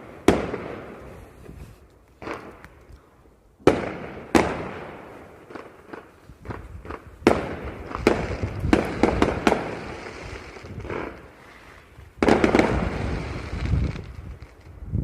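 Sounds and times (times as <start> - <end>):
fireworks bangs with echo: 0.0 - 1.1, 3.6 - 11.5, 12.2 - 14.6.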